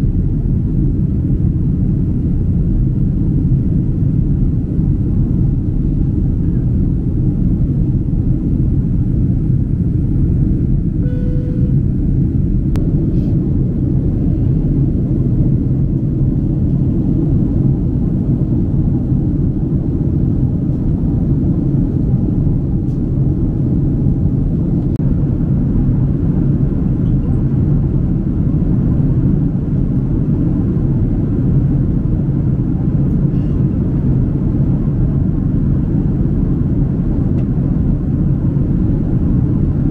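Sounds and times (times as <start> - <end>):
airliner cabin engine rumble: 0.0 - 39.9
faint tone: 11.0 - 12.0.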